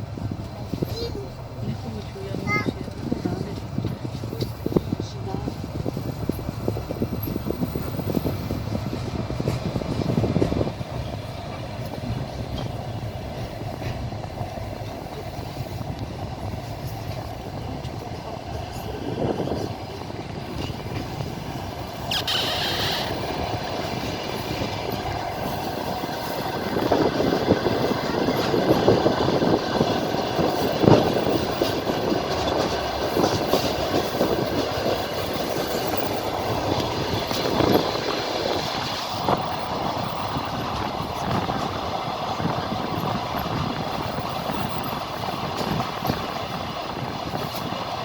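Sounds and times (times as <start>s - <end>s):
train wheels clattering over rails: 0.0s - 48.0s
high squeal: 22.0s - 23.4s.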